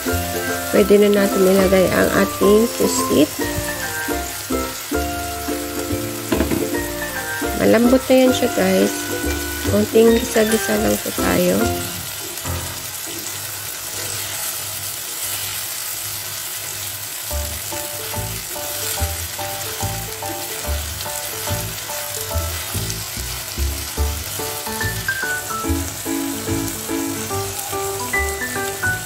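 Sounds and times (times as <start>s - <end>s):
food sizzling in a pan: 0.0s - 29.0s
spatula stirring: 8.4s - 12.4s.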